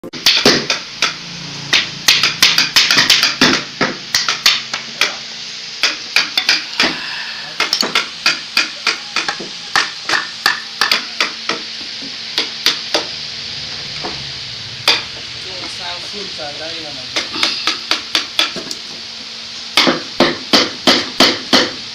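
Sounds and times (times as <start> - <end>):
hammering knocks: 7.6 - 11.7, 14.8 - 16.2, 17.1 - 18.7, 19.8 - 21.8.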